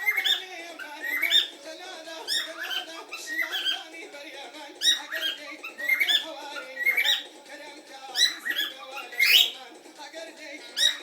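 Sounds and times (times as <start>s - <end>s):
cockatiel chirping: 0.0s - 1.6s, 2.3s - 3.8s, 4.8s - 7.3s, 8.1s - 9.6s, 10.7s - 11.0s
cockatiel warbling chatter: 0.0s - 1.6s, 2.2s - 3.9s, 4.8s - 7.3s, 8.1s - 9.6s, 10.7s - 11.0s.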